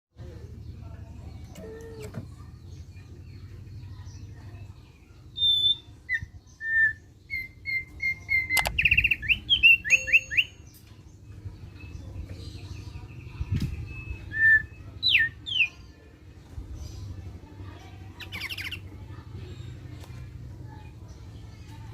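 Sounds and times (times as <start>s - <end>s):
bird singing whistled notes: 5.3s - 10.8s, 13.2s - 15.8s.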